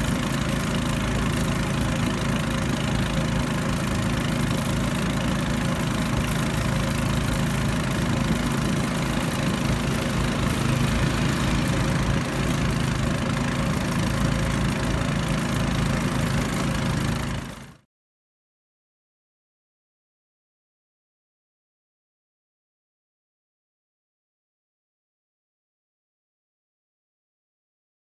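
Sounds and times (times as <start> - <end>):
outboard motor running: 0.0 - 17.8.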